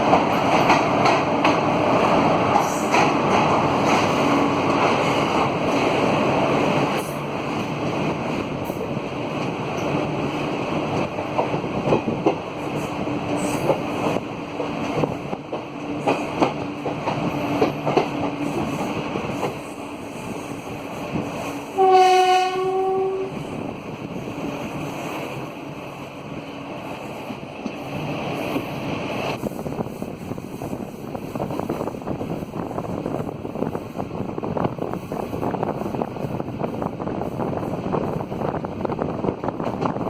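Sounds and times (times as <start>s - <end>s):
train wheels clicking over rail joints: 0.0s - 21.8s
locomotive horn blast: 21.8s - 23.4s.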